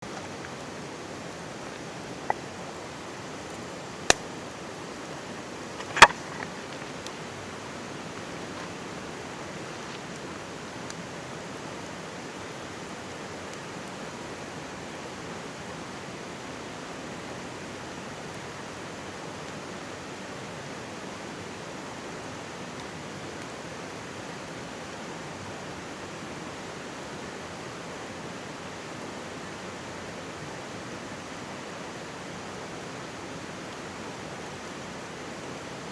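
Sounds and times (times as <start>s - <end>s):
campfire crackling: 0.0s - 35.9s
mountain stream babbling: 0.0s - 35.9s
sharp pops from fire: 3.4s - 4.6s, 5.7s - 7.2s.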